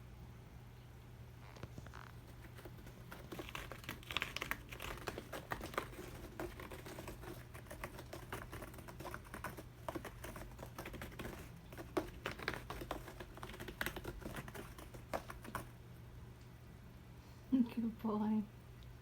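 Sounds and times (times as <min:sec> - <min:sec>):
kittens' claws tapping on hard surface: 0:02.1 - 0:15.7.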